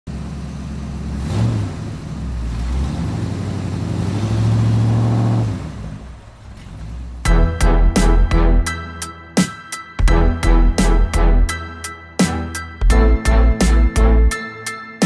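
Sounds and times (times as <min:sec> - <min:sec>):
sports car engine humming: 0:00.1 - 0:09.2.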